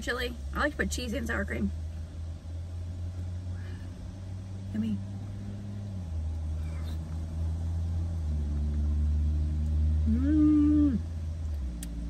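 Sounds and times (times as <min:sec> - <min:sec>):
car engine idling: 0:00.0 - 0:12.0
person humming while eating: 0:10.0 - 0:11.1.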